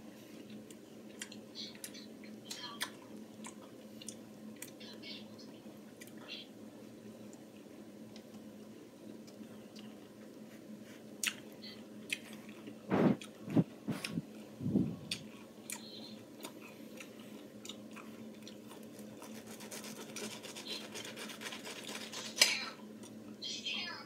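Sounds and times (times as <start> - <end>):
person chewing juicy fruit: 0.3 - 4.8, 9.1 - 14.3, 14.9 - 23.2.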